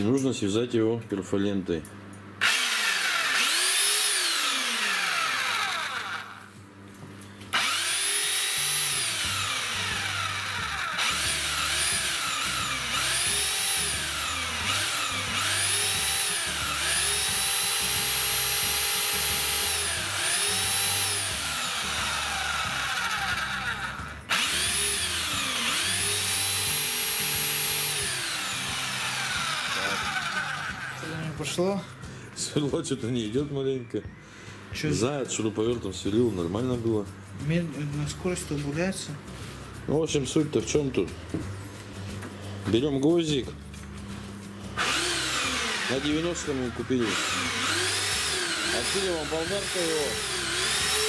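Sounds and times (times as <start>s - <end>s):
rotary hammer drilling into brick: 2.4s - 6.4s, 7.6s - 31.0s, 44.8s - 51.0s.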